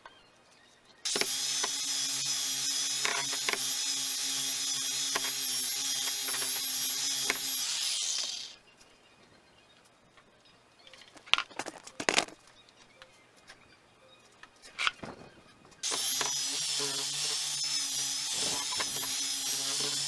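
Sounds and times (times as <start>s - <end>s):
power tool whining: 1.1s - 8.6s, 15.8s - 20.0s.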